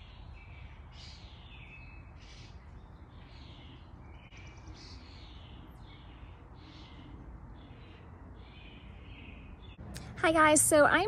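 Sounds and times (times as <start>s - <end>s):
birds calling and chirping: 0.0s - 10.2s.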